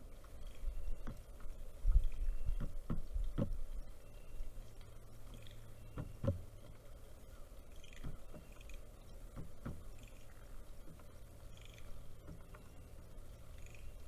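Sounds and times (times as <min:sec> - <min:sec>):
faint bird chirps: 0:00.0 - 0:14.0
woodpecker knocking: 0:00.2 - 0:03.6, 0:05.2 - 0:06.5, 0:07.7 - 0:12.8.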